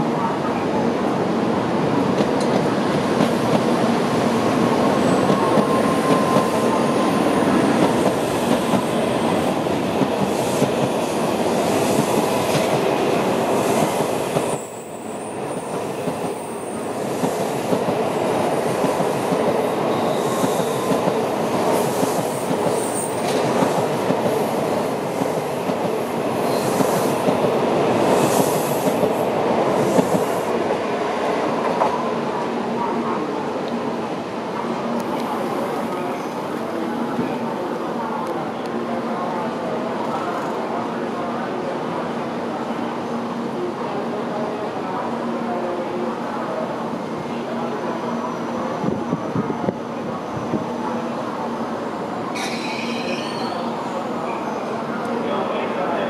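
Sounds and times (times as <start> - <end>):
train wheels rumbling on rail: 1.2 - 32.5
high-pitched wheel squeals: 52.4 - 53.7.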